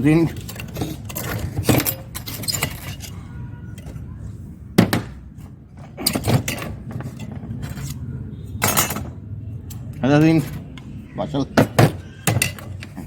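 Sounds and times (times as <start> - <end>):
metal parts knocking and clinking: 0.0 - 4.0, 5.8 - 8.0, 8.6 - 10.8, 11.6 - 13.0.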